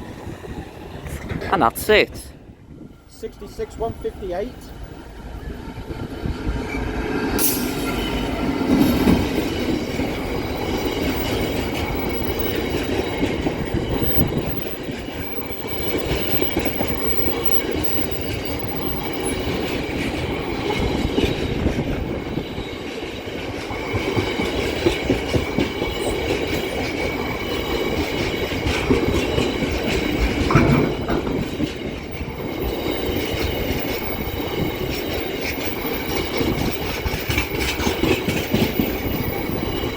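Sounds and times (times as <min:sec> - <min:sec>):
diesel locomotive rolling past: 0:00.0 - 0:39.9
wagon wheels clattering over rail joints: 0:23.1 - 0:39.9.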